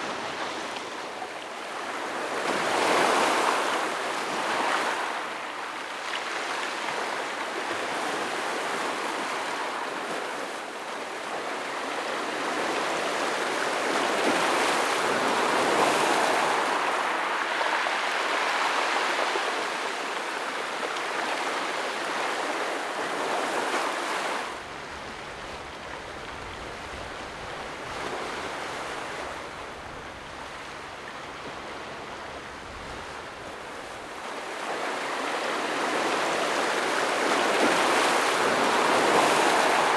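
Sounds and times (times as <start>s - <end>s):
ocean waves washing over rocks: 23.6s - 39.9s.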